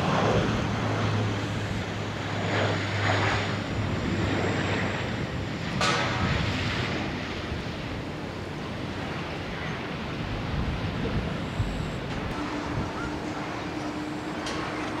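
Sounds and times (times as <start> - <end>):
jet airliner rumble: 0.0 - 15.0.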